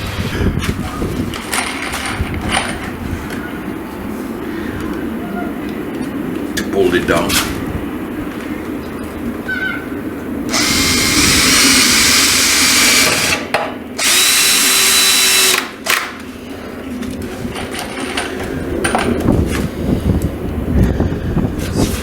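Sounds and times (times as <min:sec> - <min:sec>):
power drill running: 0:10.5 - 0:16.1.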